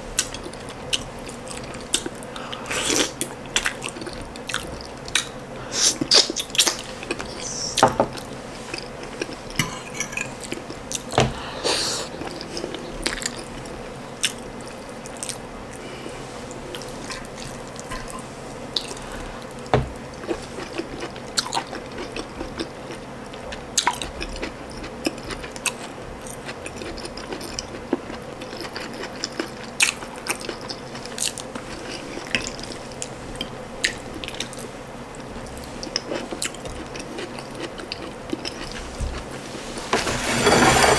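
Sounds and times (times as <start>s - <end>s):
wet chewing and lip smacking: 12.2s - 14.4s, 35.6s - 39.3s.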